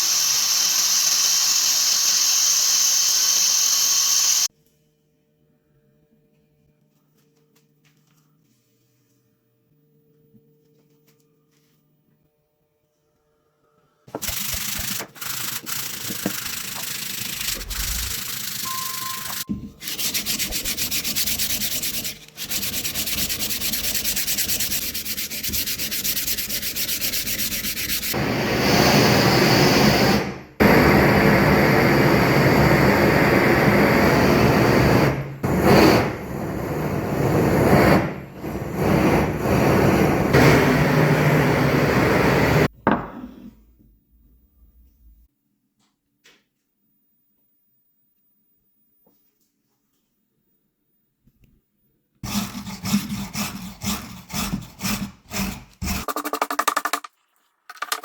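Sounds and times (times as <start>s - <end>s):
sanding rasp: 14.2s - 28.2s, 52.2s - 56.3s.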